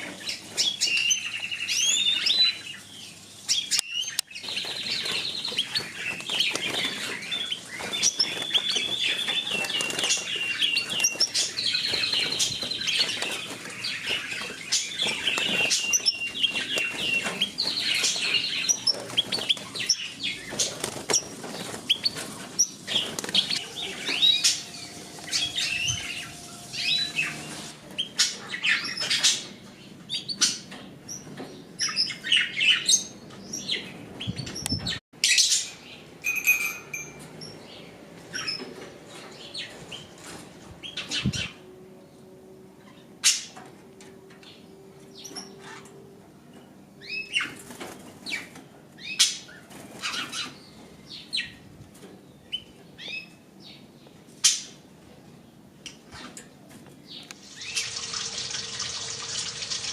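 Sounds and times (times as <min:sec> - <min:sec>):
small birds chirping and trilling: 0:00.0 - 0:36.2, 0:36.9 - 0:59.9
sharp clicks of birds moving: 0:03.7 - 0:25.7
wings fluttering: 0:04.4 - 0:27.8.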